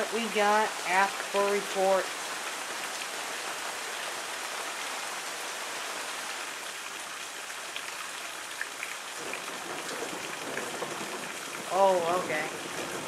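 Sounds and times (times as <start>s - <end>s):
rain falling: 0.0s - 13.0s
raindrop ticks: 7.8s - 13.0s.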